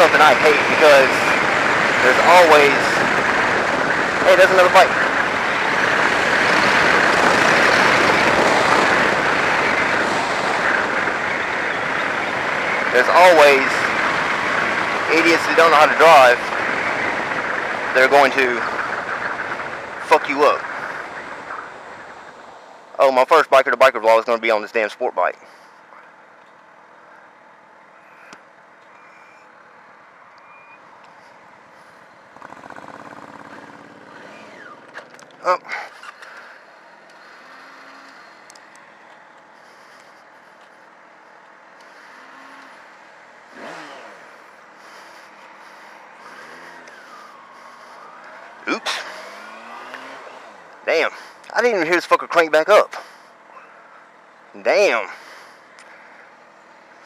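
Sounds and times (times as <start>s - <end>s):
motorcycle engine: 0.0s - 23.0s, 27.9s - 57.0s
riding noise: 0.0s - 26.1s, 28.0s - 57.0s
wind and road noise: 0.0s - 57.0s
motorcycle engine running: 31.2s - 50.9s.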